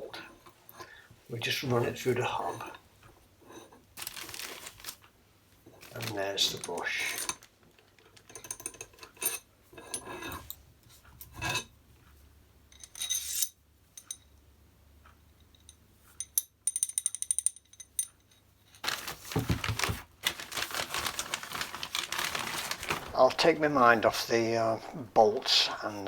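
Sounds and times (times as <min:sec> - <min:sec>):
metal car parts clicking and knocking: 0:15.5 - 0:18.4.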